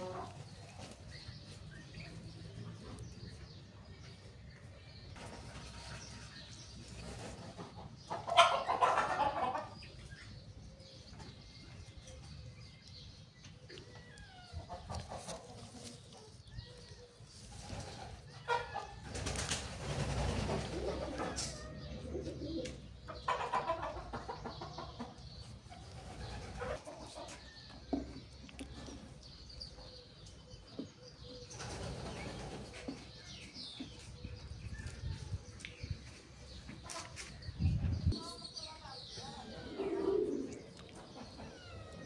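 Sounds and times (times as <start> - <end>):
birds calling: 0.0 - 42.0
rustles: 14.0 - 18.3.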